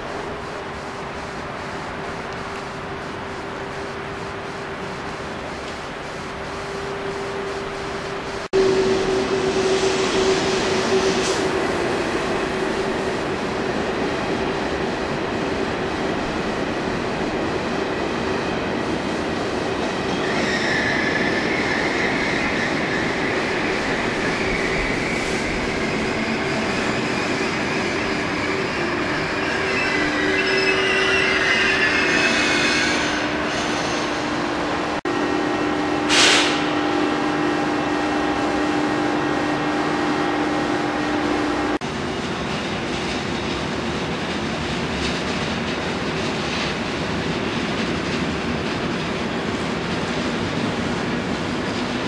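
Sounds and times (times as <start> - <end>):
steady train hum: 0.0 - 52.0
train rumble: 0.0 - 52.0
wheel squeal: 19.8 - 34.4.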